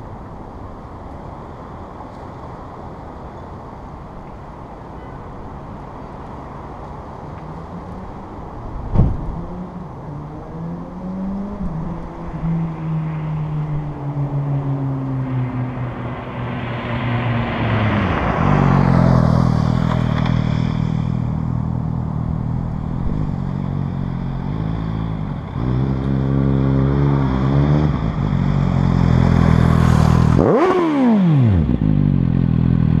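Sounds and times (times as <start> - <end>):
motorcycle passing by: 8.9 - 33.0
motorcycle engine revving: 17.6 - 33.0.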